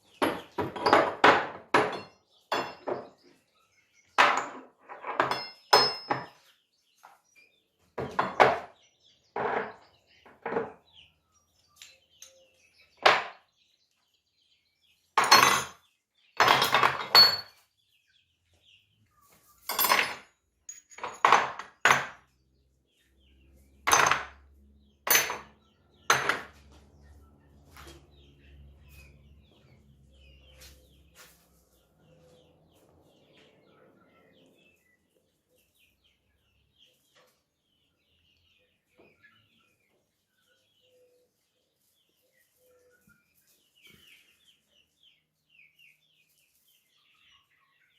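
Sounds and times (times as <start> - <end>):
metal tools clattering: 0.1 - 3.2, 4.2 - 6.4, 15.2 - 17.6, 19.6 - 22.2, 23.8 - 24.5, 25.1 - 26.7.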